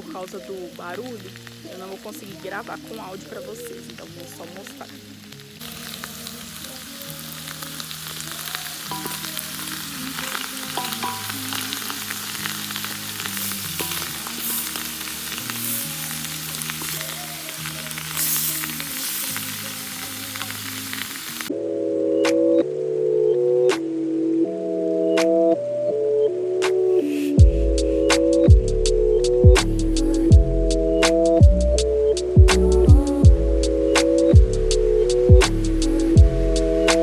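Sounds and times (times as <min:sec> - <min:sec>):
food sizzling in a pan: 0:00.0 - 0:21.5
soft background music: 0:00.0 - 0:37.0.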